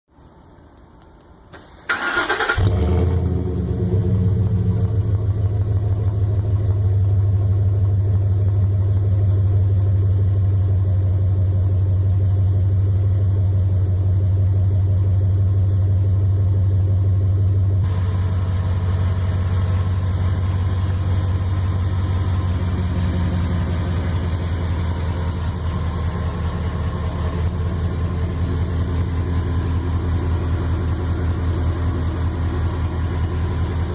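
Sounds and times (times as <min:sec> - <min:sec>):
engine cranking: 0:01.6 - 0:02.9
engine idling: 0:01.6 - 0:33.9.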